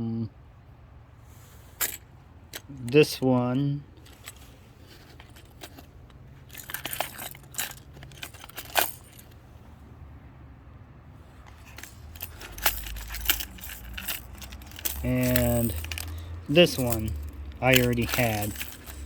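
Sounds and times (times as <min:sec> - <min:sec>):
fishing lures clicking and jingling: 0:05.1 - 0:09.4, 0:11.5 - 0:19.0.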